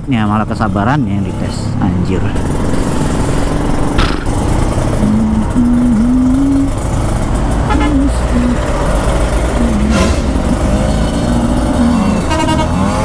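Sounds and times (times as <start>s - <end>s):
motorcycle engine running: 0.5s - 13.0s
vehicle horn toots: 7.6s - 8.2s, 11.8s - 13.0s.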